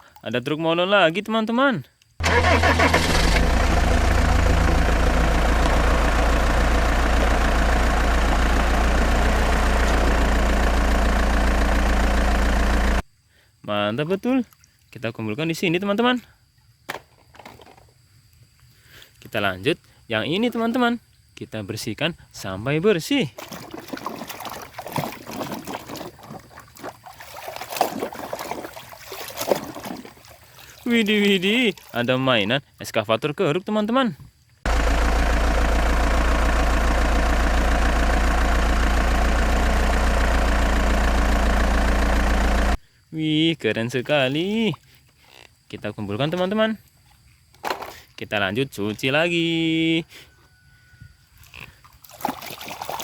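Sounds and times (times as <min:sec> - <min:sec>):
engine idling: 0:02.2 - 0:13.0, 0:34.7 - 0:42.8
water splashing and trickling: 0:14.3 - 0:15.1, 0:23.2 - 0:32.4, 0:51.4 - 0:53.0.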